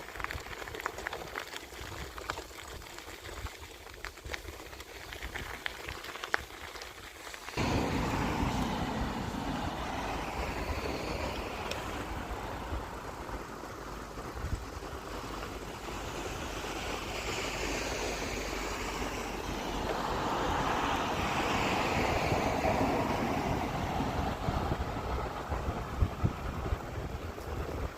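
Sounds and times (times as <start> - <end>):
wind rushing over microphone: 7.6 - 27.9.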